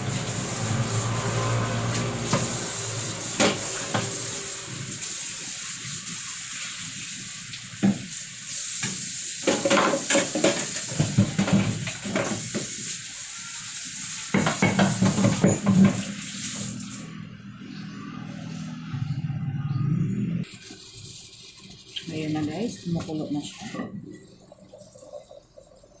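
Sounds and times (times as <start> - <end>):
sizzling hiss of cooking: 0.0 - 17.0
utensils clinking on pots: 9.4 - 12.7.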